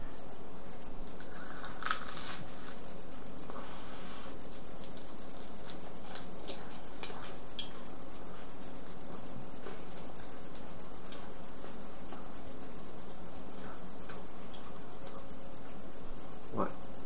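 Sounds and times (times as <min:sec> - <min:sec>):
toast crunching while chewed: 0:01.0 - 0:03.6, 0:04.4 - 0:15.3.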